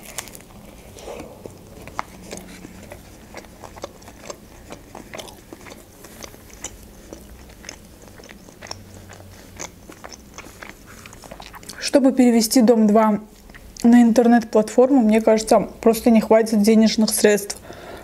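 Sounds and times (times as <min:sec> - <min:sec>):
person biting and chewing: 0:00.0 - 0:11.8.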